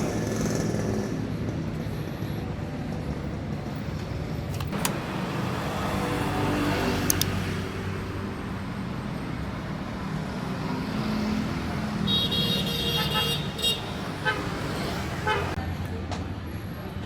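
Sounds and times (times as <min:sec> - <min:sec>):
sharp clicks: 0:07.0 - 0:07.4.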